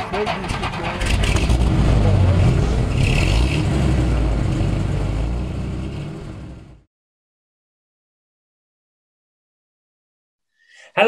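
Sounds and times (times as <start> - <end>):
car engine revving: 0.0 - 6.9.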